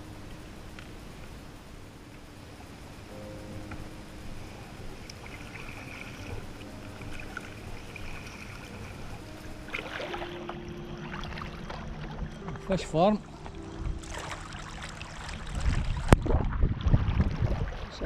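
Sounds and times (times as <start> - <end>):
water lapping around kayak: 3.7 - 18.0
splashy paddle strokes: 4.4 - 18.0.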